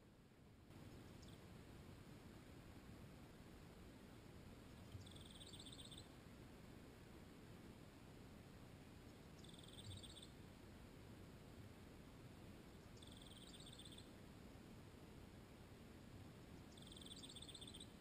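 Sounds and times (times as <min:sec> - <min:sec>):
faint low rumble: 0:00.0 - 0:18.0
distant bird trill: 0:04.9 - 0:06.1, 0:09.2 - 0:10.4, 0:12.9 - 0:14.1, 0:16.7 - 0:18.0.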